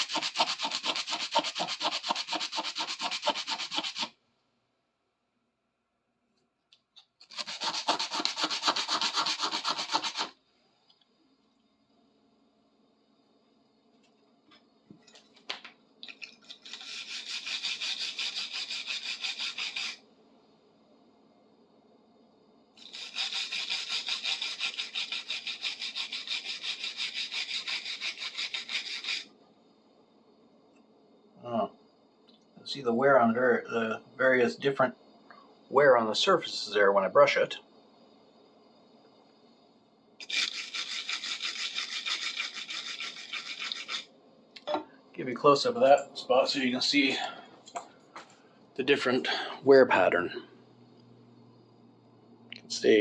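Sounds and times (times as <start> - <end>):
hand scrubbing on metal wrench: 0.0 - 4.1, 7.3 - 10.3, 16.4 - 20.0, 22.8 - 29.3, 40.2 - 44.1
faint steady hum: 0.0 - 53.0.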